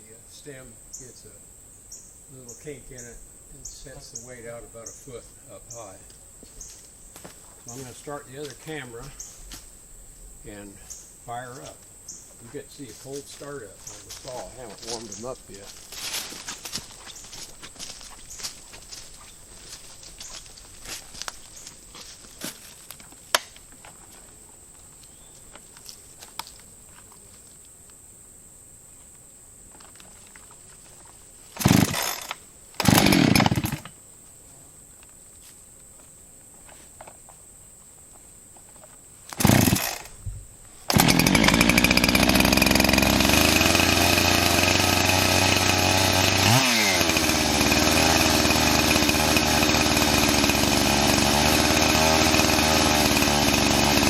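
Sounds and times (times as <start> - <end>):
chainsaw starting and running: 31.6 - 34.0, 39.3 - 40.1, 40.9 - 54.0.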